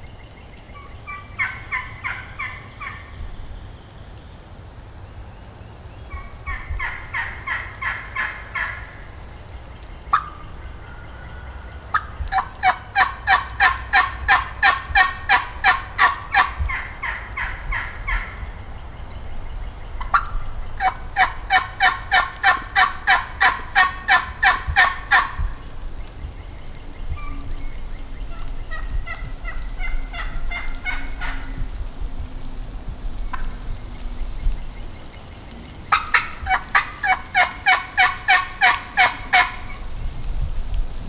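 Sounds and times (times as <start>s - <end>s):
wild turkey yelping: 0.8s - 3.2s, 6.1s - 9.0s, 10.1s - 18.5s, 20.0s - 25.5s, 28.2s - 32.0s, 33.3s - 33.6s, 35.9s - 39.8s.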